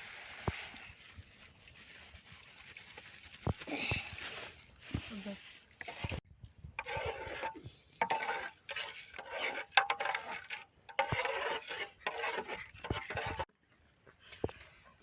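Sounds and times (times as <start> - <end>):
metal spoon scraping a pan: 6.8 - 13.5.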